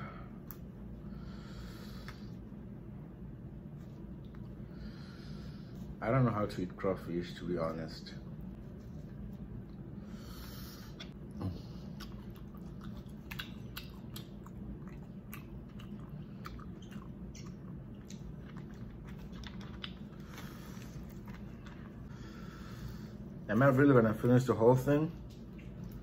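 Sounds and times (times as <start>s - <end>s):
steady low hum: 0.0s - 26.0s
close-up chewing: 10.9s - 22.4s, 25.2s - 26.0s.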